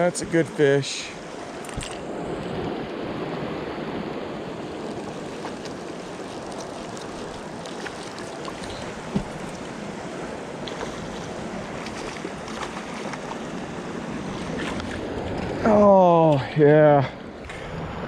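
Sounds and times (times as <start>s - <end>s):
river water rushing: 0.0s - 16.3s
small water splashes: 4.5s - 15.0s.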